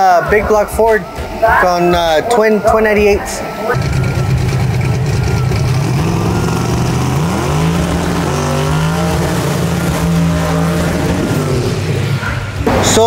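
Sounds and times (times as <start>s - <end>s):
race car engine idling: 3.8s - 12.7s.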